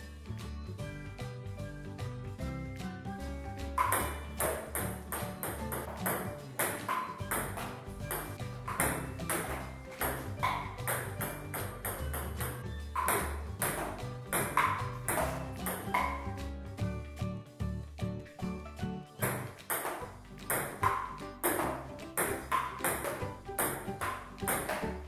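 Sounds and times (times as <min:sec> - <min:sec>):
music with stepping bass line: 0:00.4 - 0:18.2.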